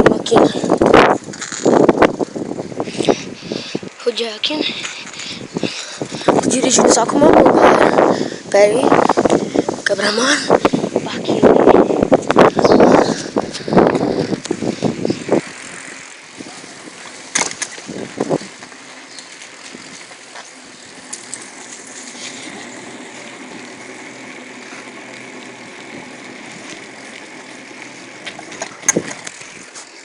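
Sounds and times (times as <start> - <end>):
bicycle rolling noise: 0.0 - 30.0.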